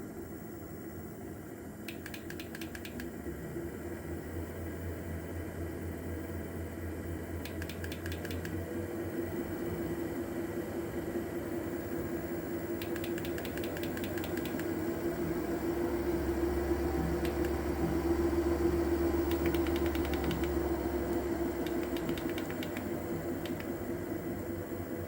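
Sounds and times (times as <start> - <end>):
rapid clicking: 1.9 - 3.1, 7.5 - 8.6, 12.8 - 14.7, 19.3 - 20.6, 21.7 - 23.7
treadmill motor hum: 12.8 - 23.7.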